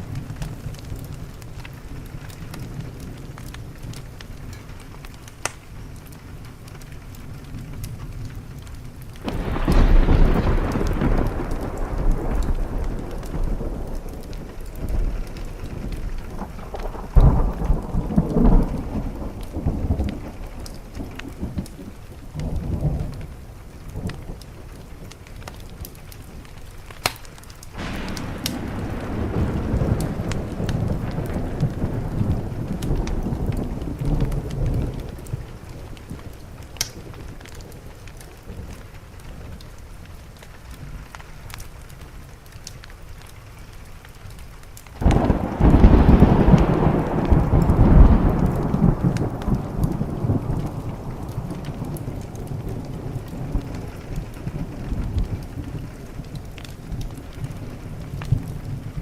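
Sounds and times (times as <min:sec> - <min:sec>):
rain on a window: 0:00.0 - 0:59.0
rolling thunder: 0:07.4 - 0:26.6, 0:27.7 - 0:40.0, 0:45.0 - 0:59.0.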